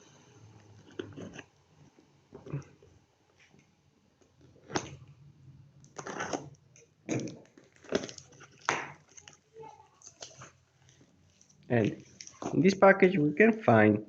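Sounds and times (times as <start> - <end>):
packaging tearing and crinkling: 7.1 - 10.6.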